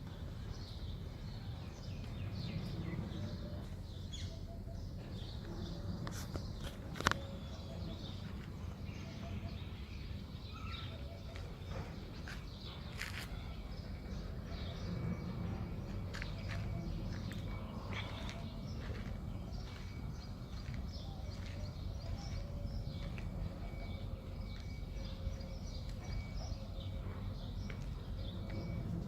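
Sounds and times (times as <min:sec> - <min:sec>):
small birds chirping: 0:00.0 - 0:29.0
steady low rumble: 0:11.5 - 0:29.0.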